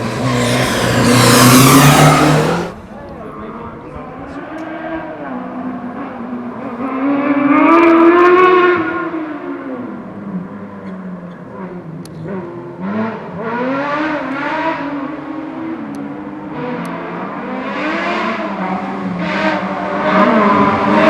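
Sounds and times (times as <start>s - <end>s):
racing car engine revving: 0.0s - 9.6s.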